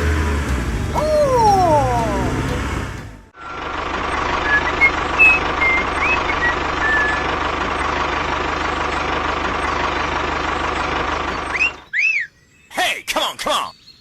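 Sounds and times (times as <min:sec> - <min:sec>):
small engine running: 0:00.0 - 0:11.9
bird chirps: 0:04.4 - 0:07.4, 0:10.6 - 0:14.0.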